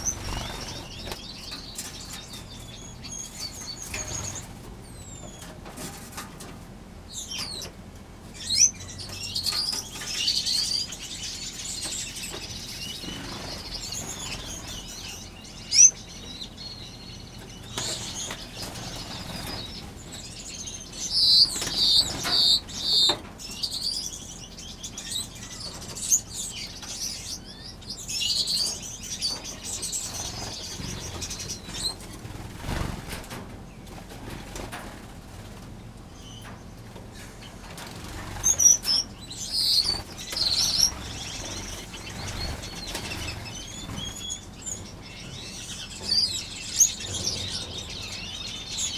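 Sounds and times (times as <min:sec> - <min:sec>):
finches chirping: 0:00.0 - 0:05.5, 0:07.1 - 0:33.3, 0:36.2 - 0:48.9
wings fluttering: 0:00.0 - 0:06.7, 0:11.6 - 0:15.2, 0:17.4 - 0:23.4, 0:28.8 - 0:35.8, 0:36.9 - 0:45.0.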